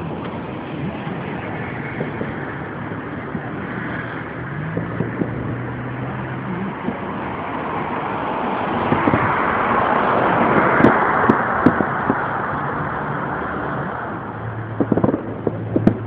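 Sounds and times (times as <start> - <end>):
continuous rumbling roar: 0.0 - 16.0
fireworks popping and thumping: 14.7 - 16.0.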